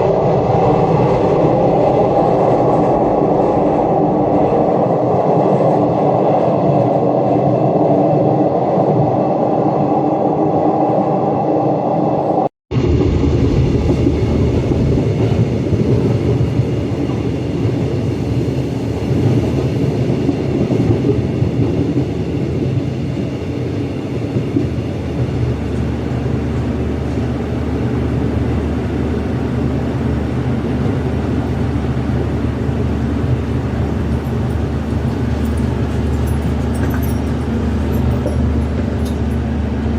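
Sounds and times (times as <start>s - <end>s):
train rumbling on rails: 0.0s - 39.9s.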